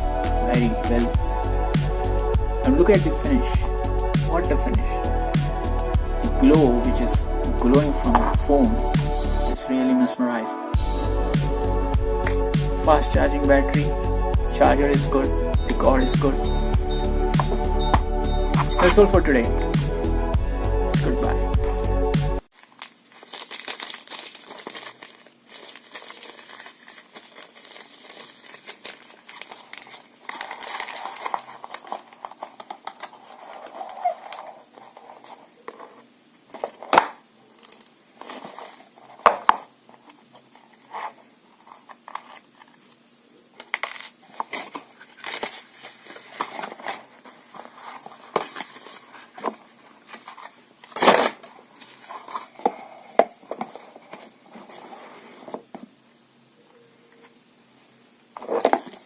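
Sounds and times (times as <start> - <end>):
rustling and crinkling: 22.5 - 56.0, 58.3 - 59.0.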